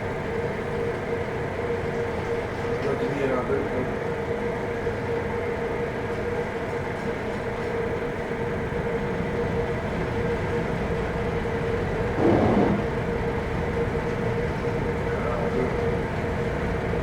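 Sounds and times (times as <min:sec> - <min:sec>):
ship engines droning: 0:07.5 - 0:17.0
rush of noise: 0:12.2 - 0:13.1.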